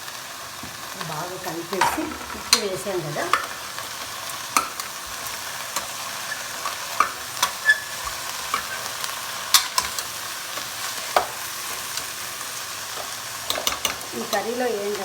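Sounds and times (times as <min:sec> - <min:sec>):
vegetables sizzling in oil: 0:00.0 - 0:15.0
spatula scraping a pan: 0:01.7 - 0:12.3.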